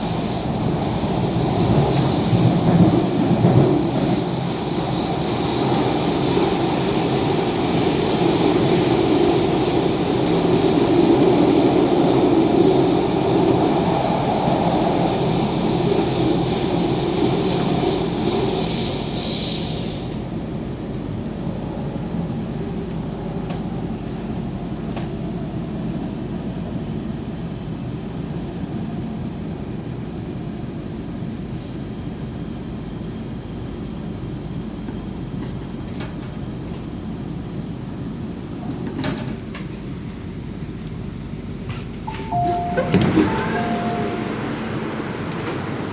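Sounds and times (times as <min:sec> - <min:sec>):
high whining tones: 0:42.1 - 0:45.5.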